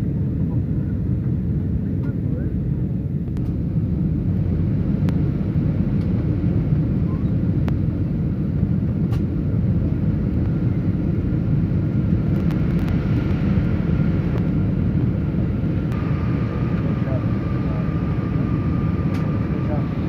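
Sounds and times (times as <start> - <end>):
airliner cabin engine rumble: 0.0 - 20.0.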